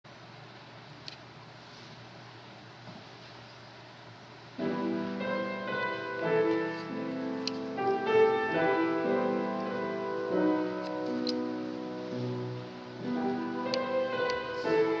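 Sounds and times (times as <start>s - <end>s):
low hiss: 0.1s - 15.0s
piano music: 4.6s - 15.0s.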